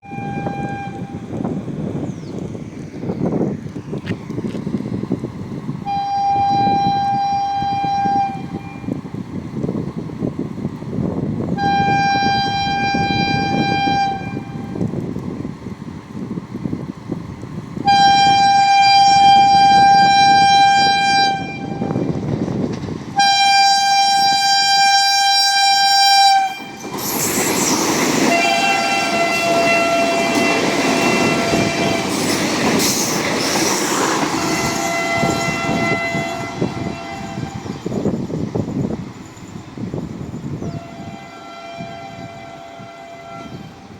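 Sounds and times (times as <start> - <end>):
train horn blasts: 0.0 - 1.3, 5.8 - 8.9, 11.6 - 14.8, 17.8 - 22.1, 23.2 - 26.8, 28.2 - 32.3, 34.4 - 37.8, 40.6 - 43.9
lower-pitched train horn: 0.0 - 1.4, 5.8 - 9.0, 11.5 - 14.9, 17.8 - 22.2, 23.2 - 26.9, 28.2 - 32.4, 34.4 - 38.0, 40.5 - 43.9
train passing on track: 0.0 - 43.9.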